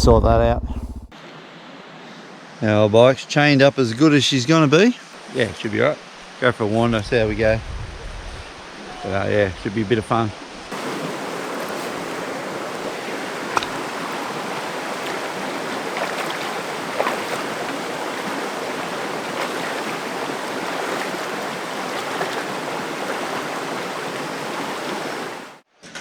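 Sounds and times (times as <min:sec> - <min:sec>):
water rushing over rocks: 0:10.7 - 0:25.6.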